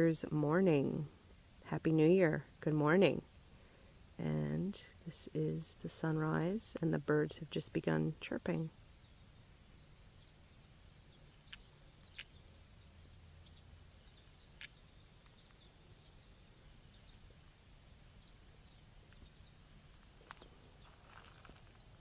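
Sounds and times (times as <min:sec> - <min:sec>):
faint low hum: 0:00.0 - 0:22.0
birds chirping: 0:01.8 - 0:22.0.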